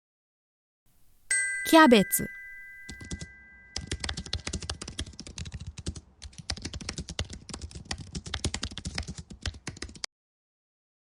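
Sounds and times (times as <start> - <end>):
computer keyboard typing: 2.8 - 10.1.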